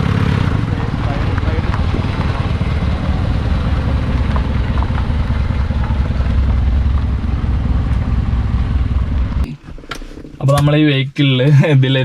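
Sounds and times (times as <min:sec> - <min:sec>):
diesel engine running: 0:00.0 - 0:09.5.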